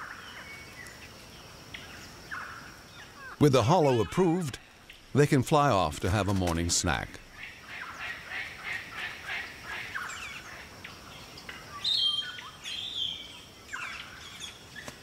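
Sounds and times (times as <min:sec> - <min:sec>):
birds chirping: 0:00.0 - 0:15.0
faint outdoor background: 0:00.0 - 0:15.0.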